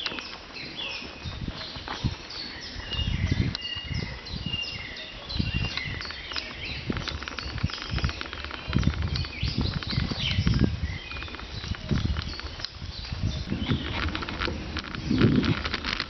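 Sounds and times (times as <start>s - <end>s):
small birds chirping: 0.0s - 16.0s
low rumbles and thumps: 5.4s - 16.0s.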